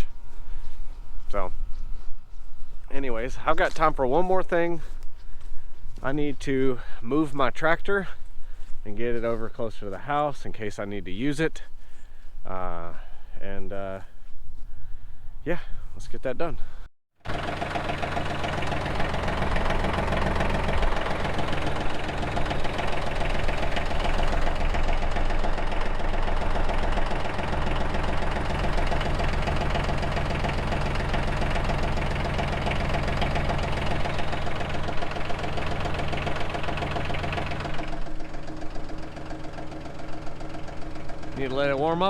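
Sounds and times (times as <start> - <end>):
tractor engine idling: 17.2 - 42.0.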